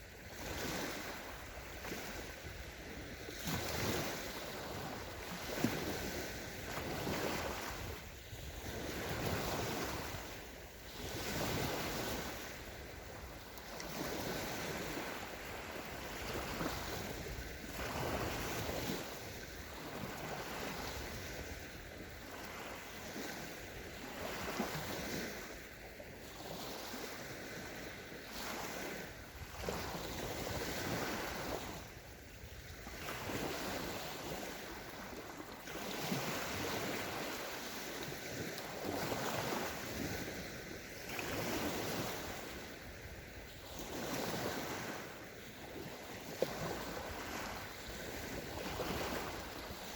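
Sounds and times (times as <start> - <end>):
small waves washing onto sand: 0.0 - 49.9.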